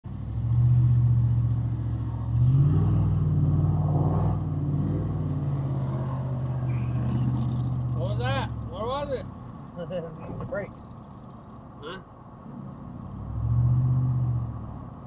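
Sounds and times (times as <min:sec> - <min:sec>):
road noise: 0:00.0 - 0:15.0
car engine accelerating: 0:00.1 - 0:11.6.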